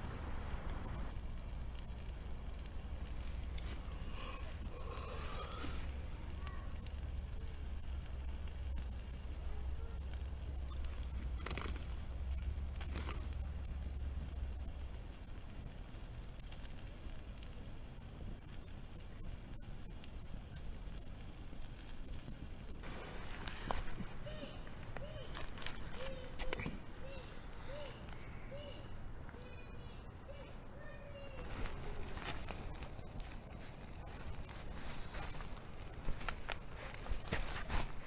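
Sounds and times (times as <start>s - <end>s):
food sizzling on a grill: 0.0s - 23.5s, 30.8s - 38.0s.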